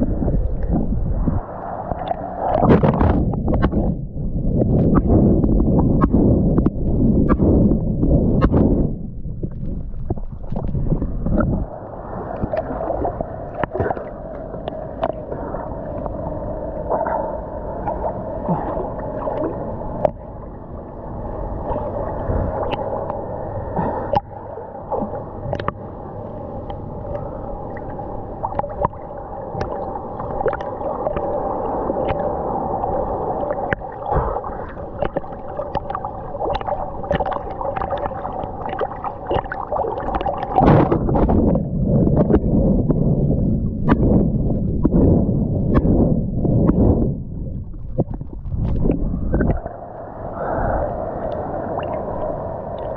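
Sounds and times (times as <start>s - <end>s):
faint hum: 0.0s - 52.9s
water sloshing and gurgling: 0.0s - 52.9s
small clicks and splashes: 24.9s - 25.8s, 29.6s - 31.3s, 33.6s - 41.4s.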